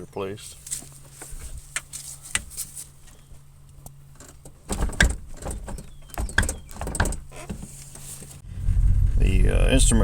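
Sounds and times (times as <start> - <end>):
truck door clunking on worn hinges: 3.8 - 8.1.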